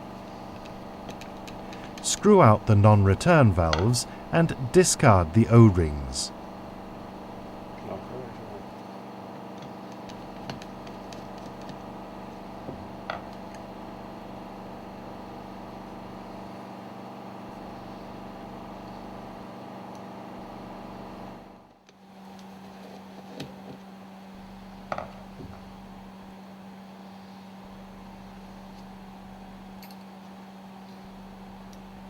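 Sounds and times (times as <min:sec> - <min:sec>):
low machinery hum: 0:00.0 - 0:08.6.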